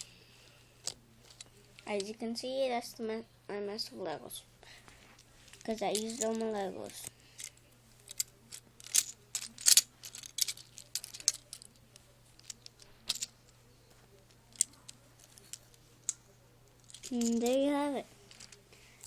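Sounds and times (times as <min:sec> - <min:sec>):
plastic bricks clicking and rattling: 0:08.1 - 0:11.8, 0:12.4 - 0:13.3, 0:14.5 - 0:15.8, 0:16.8 - 0:17.6, 0:18.3 - 0:18.6.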